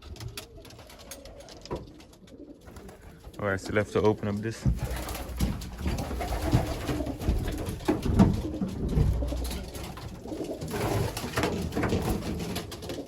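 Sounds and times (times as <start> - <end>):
pigeons cooing: 0.1 - 13.0
handling knocks: 4.6 - 12.7.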